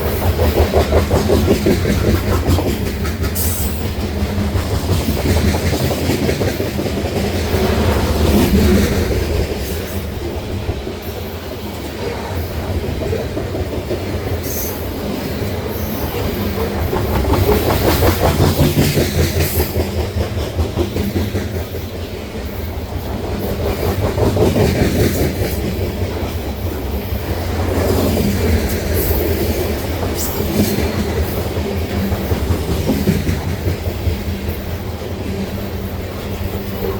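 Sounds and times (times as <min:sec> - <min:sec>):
low train rumble: 0:00.0 - 0:36.9
train wheels clattering over rail joints: 0:00.0 - 0:36.9.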